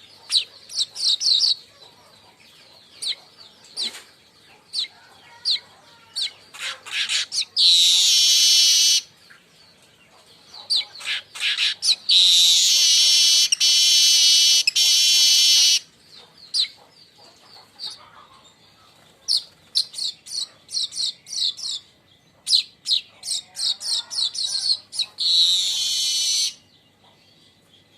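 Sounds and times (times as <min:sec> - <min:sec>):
weaver bird chips and chatters: 0:00.0 - 0:27.4
weaver bird buzzes: 0:07.6 - 0:09.0, 0:12.2 - 0:15.8, 0:25.2 - 0:26.5.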